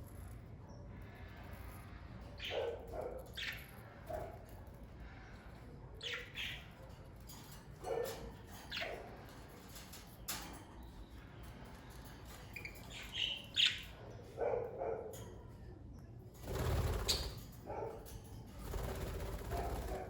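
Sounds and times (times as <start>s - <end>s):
wing flapping: 16.4s - 17.5s, 18.6s - 20.0s.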